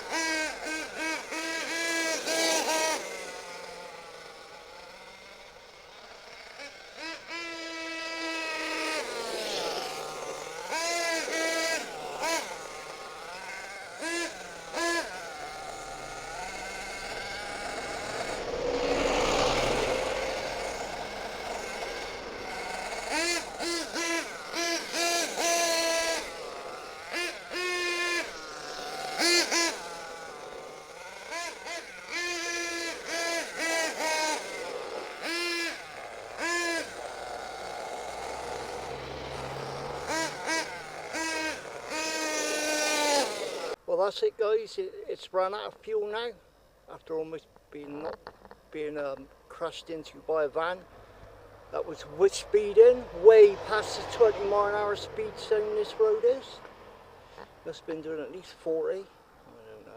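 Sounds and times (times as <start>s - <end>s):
nitro engine revving: 0.0s - 43.8s, 51.4s - 58.6s
loud rushing sound: 16.9s - 22.9s.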